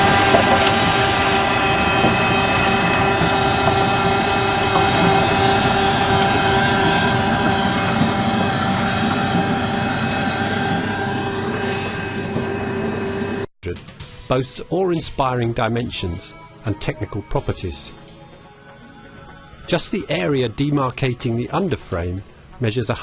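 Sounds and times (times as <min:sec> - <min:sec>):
engine running with a whine: 0:00.0 - 0:13.5.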